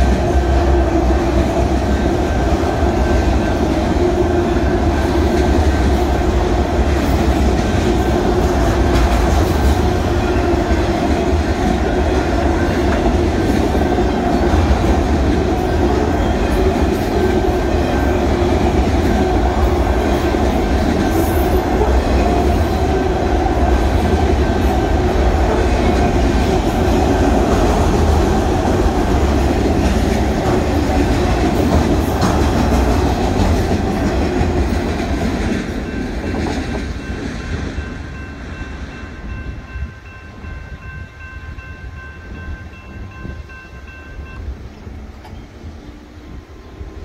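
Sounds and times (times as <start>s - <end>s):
train wheels clattering on rails: 0.0s - 40.0s
crossing signal bell ringing: 35.8s - 44.6s.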